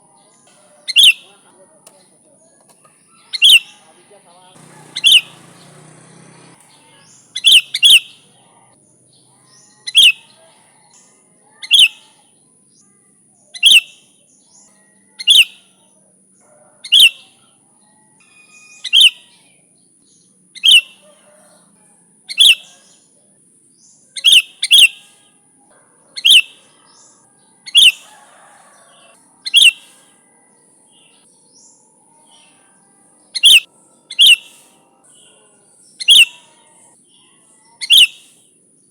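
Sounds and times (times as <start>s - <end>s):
bulbul calling: 0.3s - 8.7s, 9.3s - 12.2s, 13.6s - 15.8s, 16.8s - 17.4s, 18.2s - 19.5s, 20.6s - 21.4s, 22.3s - 23.0s, 24.1s - 25.3s, 26.2s - 27.1s, 27.7s - 28.3s, 28.9s - 30.2s, 33.4s - 37.0s, 37.6s - 38.5s.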